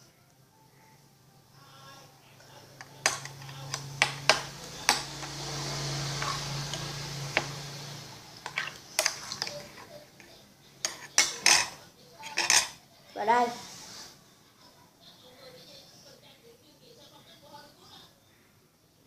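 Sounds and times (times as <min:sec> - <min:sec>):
low hum: 0:02.4 - 0:09.1.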